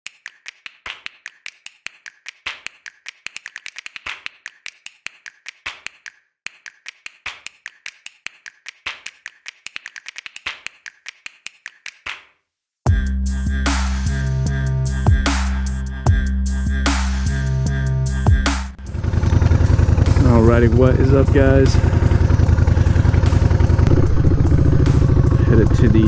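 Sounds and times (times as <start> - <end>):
rapid rhythmic sharp clicks: 0.0 - 12.3, 18.3 - 26.0.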